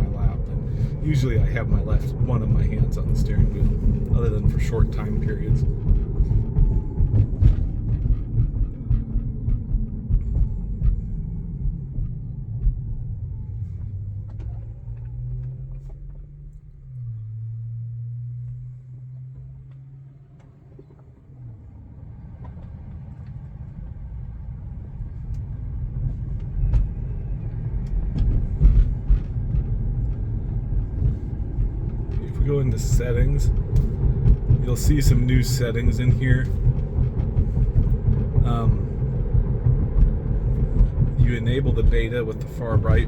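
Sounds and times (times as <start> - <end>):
low steady hum: 0.0 - 43.0
road and tyre rumble: 0.0 - 43.0.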